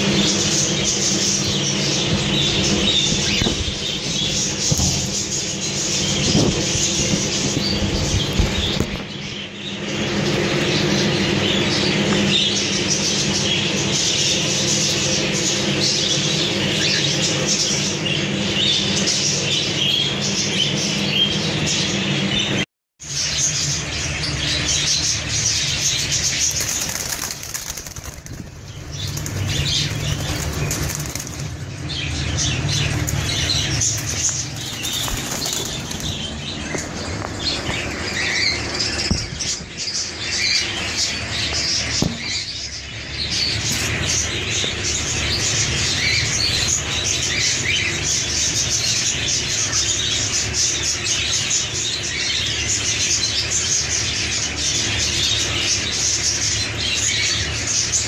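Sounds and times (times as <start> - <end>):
cockatiels chirping and chattering: 0.0 - 22.6, 23.2 - 58.0
wings flapping: 26.2 - 31.8, 32.9 - 37.9.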